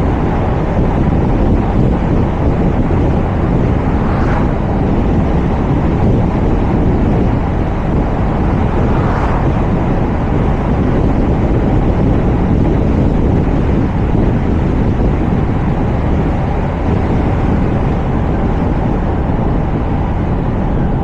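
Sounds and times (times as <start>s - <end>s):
low road rumble: 0.0s - 21.0s
wind rushing over microphone: 0.0s - 21.0s
brief swooshes: 3.2s - 5.1s, 8.2s - 10.2s.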